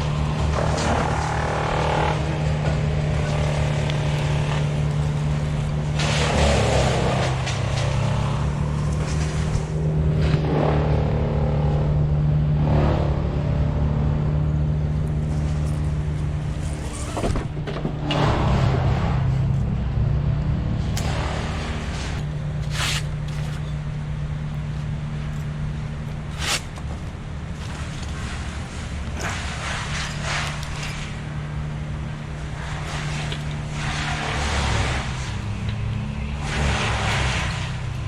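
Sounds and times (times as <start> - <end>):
crane engine running: 0.0 - 38.0
rushes of noise: 27.4 - 38.0.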